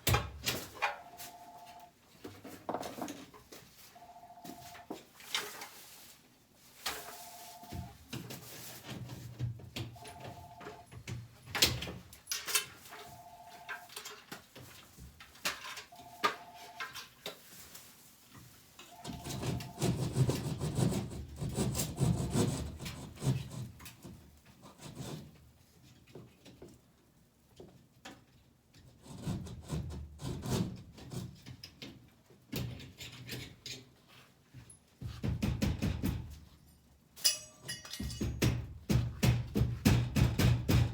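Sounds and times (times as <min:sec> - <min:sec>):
hand rubbing and scraping: 0:05.4 - 0:07.7
two-tone electronic beep: 0:18.9 - 0:19.9.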